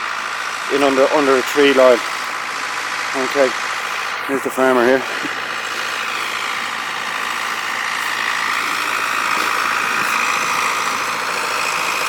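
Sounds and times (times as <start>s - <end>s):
vehicle engine idling: 0.0s - 12.0s
constant low hum: 3.3s - 12.0s.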